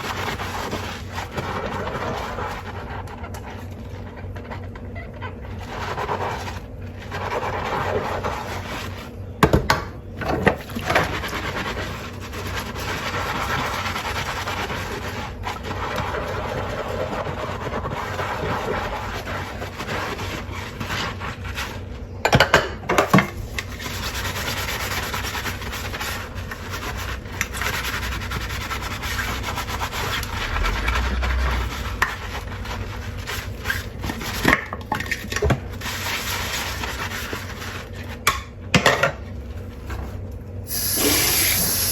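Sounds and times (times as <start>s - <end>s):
sponge scrubbing dishes: 0.0s - 38.2s.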